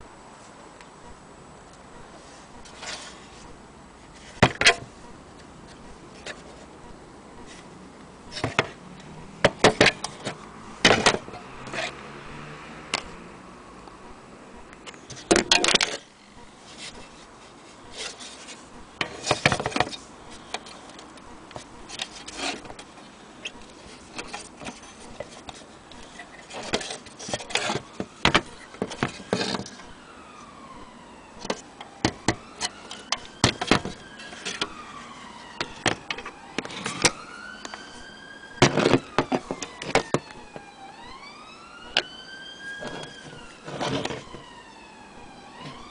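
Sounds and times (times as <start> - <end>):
siren wailing: 18.6 - 45.9.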